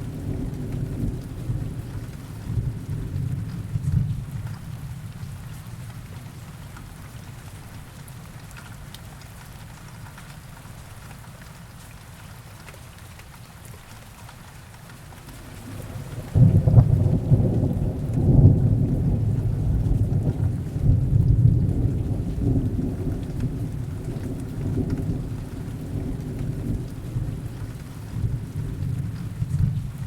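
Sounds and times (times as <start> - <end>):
rolling thunder rumble: 0.0 - 5.4, 15.2 - 30.0
heavy rain: 0.0 - 30.0.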